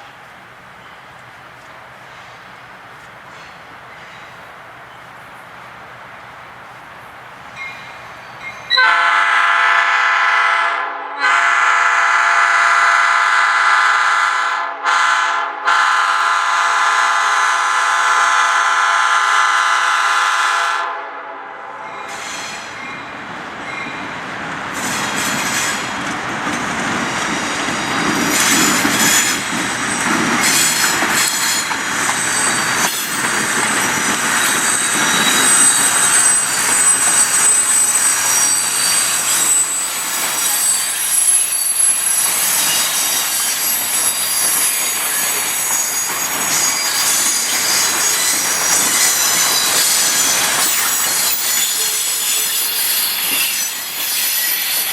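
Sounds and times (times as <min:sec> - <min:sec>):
train rumbling past: 0:00.0 - 0:54.9
locomotive air horn: 0:08.7 - 0:21.6
high-pitched wheel squeal: 0:27.8 - 0:54.9.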